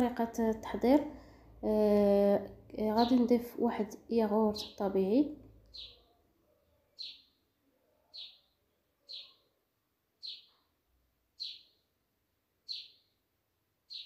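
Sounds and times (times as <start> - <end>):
bird chirping faintly: 2.7 - 12.0, 12.6 - 14.0.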